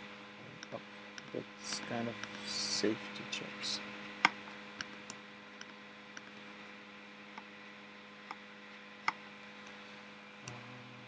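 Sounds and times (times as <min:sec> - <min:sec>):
low electrical hum: 0:00.0 - 0:11.0
sharp clicks: 0:00.6 - 0:02.8, 0:04.2 - 0:06.4.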